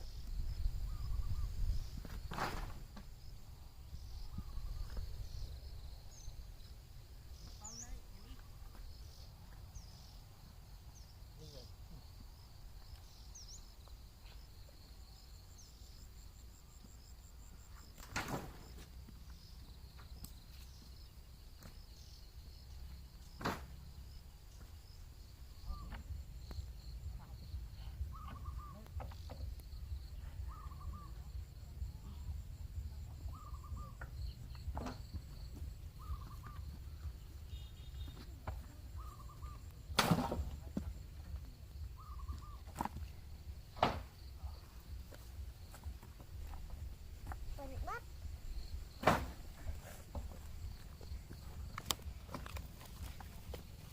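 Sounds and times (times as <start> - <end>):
bird chirps: 0.0 - 2.2, 3.8 - 11.7, 25.5 - 32.2, 32.9 - 40.0, 41.7 - 43.2
insects trilling: 0.0 - 53.9
rustle or scrape: 2.0 - 3.1
pulsing chirp: 35.9 - 38.2, 41.8 - 42.7.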